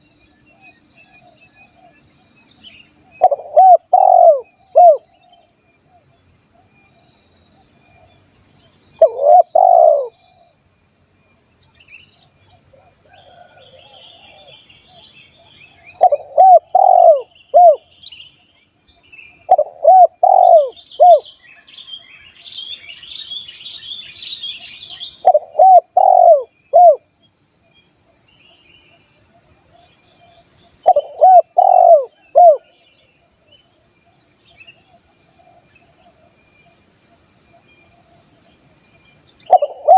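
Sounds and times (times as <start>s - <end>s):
small birds chirping: 0.0s - 39.9s
dove cooing: 3.2s - 5.4s, 9.0s - 10.5s, 12.8s - 14.6s, 15.9s - 17.9s, 19.4s - 21.3s, 25.2s - 27.1s, 30.8s - 32.8s, 39.5s - 39.9s.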